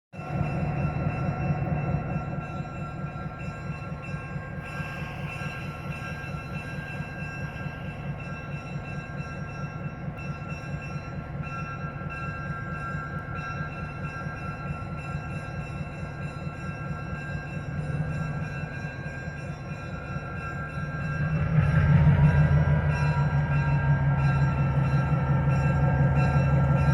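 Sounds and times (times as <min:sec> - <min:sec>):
train rumbling: 0:00.2 - 0:26.9
steady high tones: 0:18.0 - 0:26.9.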